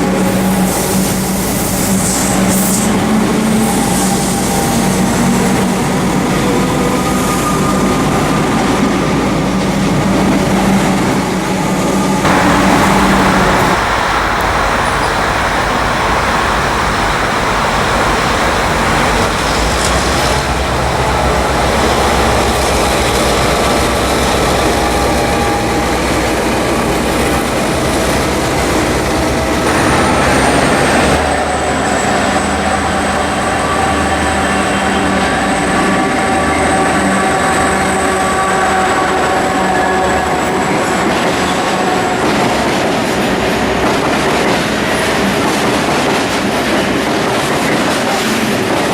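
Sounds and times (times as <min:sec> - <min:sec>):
train wheels rumbling on rails: 0:00.0 - 0:48.9
high thin whine: 0:12.2 - 0:24.4.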